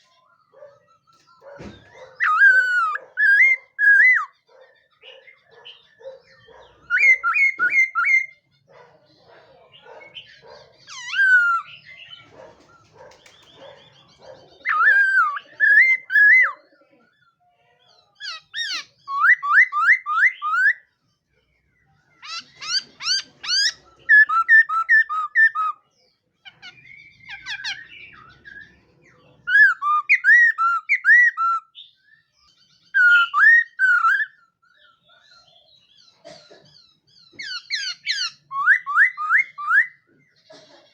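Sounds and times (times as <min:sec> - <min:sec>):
bird singing whistled phrases: 0:06.9 - 0:08.4, 0:14.7 - 0:16.6, 0:18.4 - 0:20.8, 0:22.3 - 0:25.8, 0:29.5 - 0:32.0, 0:32.9 - 0:34.4, 0:37.6 - 0:40.0.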